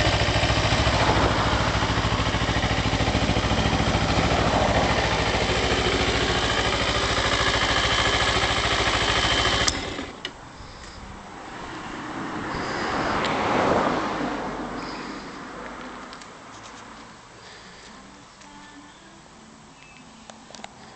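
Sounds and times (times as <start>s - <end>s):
rushing noise: 0.0s - 7.4s
motorcycle engine idling: 0.0s - 11.2s.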